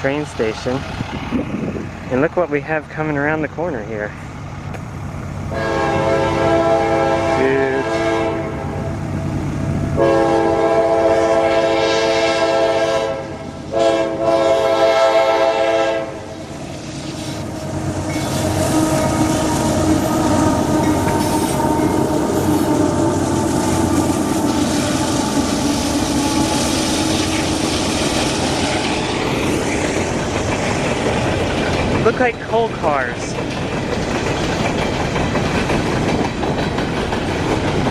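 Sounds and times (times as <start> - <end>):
train rumbling and clattering past: 0.0 - 37.9
locomotive air horn blasts: 5.5 - 8.9, 10.0 - 16.2, 18.2 - 23.1.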